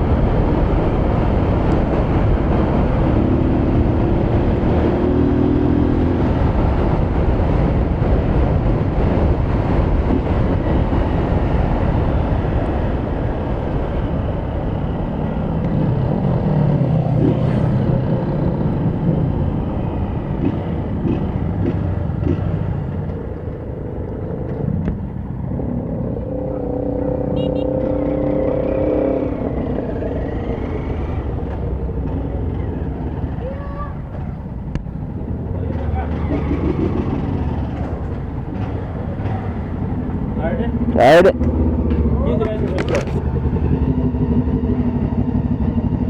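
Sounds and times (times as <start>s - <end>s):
wind noise on microphone: 0.0s - 23.0s
motorcycle engine running: 14.4s - 33.6s.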